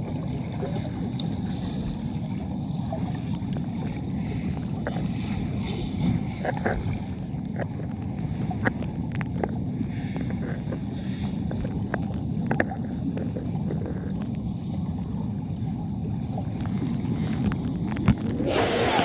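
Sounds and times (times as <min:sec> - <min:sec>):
rush of flowing water: 0:16.3 - 0:19.0.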